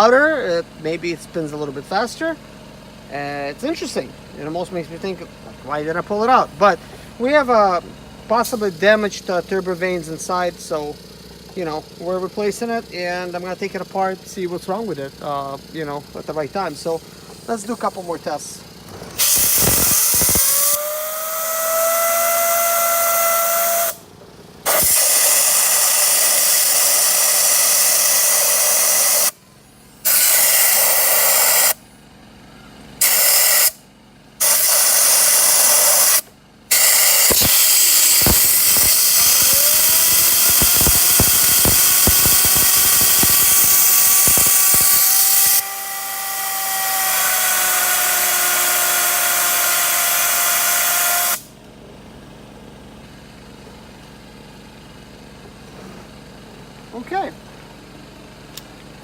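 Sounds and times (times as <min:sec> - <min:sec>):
sharp clicks: 0:19.2 - 0:20.8, 0:37.0 - 0:45.6
rushing blast of air: 0:19.2 - 0:24.0, 0:34.4 - 0:51.5
turbo whistle spooling up: 0:19.2 - 0:24.0, 0:24.7 - 0:29.4, 0:30.0 - 0:31.8, 0:33.0 - 0:33.8, 0:34.4 - 0:51.5.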